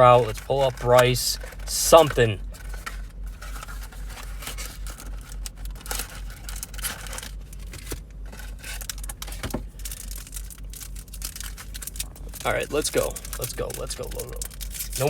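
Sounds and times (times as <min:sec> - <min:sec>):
plastic and foil packaging crinkling: 0:00.0 - 0:15.0.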